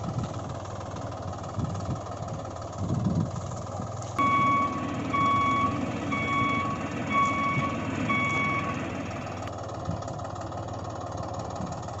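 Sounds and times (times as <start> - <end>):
low motor rumble: 0.0 - 12.0
reversing beeper: 4.2 - 9.5.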